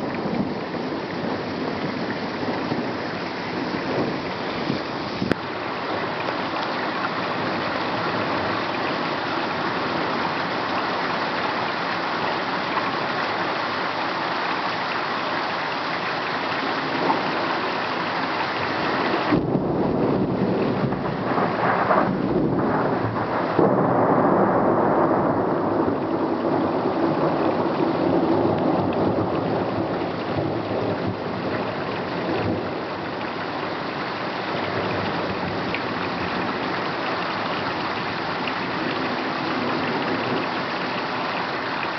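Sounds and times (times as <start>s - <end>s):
heavy rain: 0.0s - 41.9s
thunder rolling: 19.2s - 31.7s.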